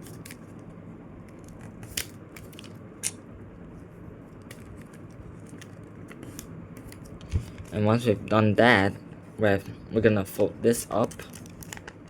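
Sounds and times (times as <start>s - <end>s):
steady low hum: 0.0s - 12.0s
paper crinkling as folded: 10.9s - 12.0s.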